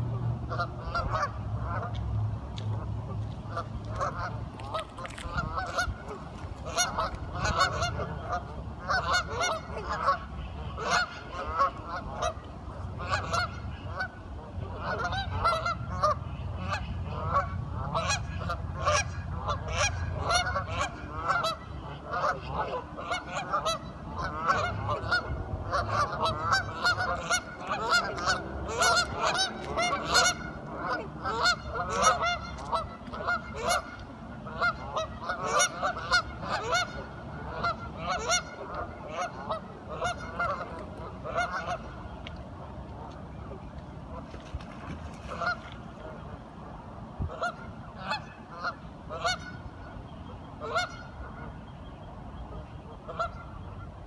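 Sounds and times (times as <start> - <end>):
ducks quacking: 0.5 - 2.0, 2.6 - 42.2, 43.0 - 46.4, 47.2 - 51.6, 52.5 - 53.9.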